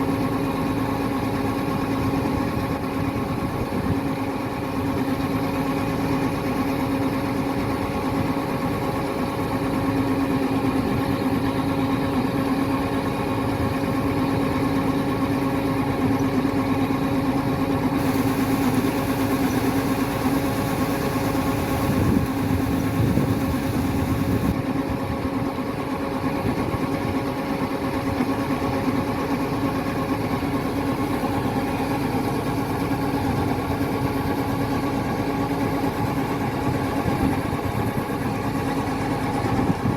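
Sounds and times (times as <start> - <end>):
diesel engine humming: 7.7 - 25.6
bright hiss: 18.0 - 24.5.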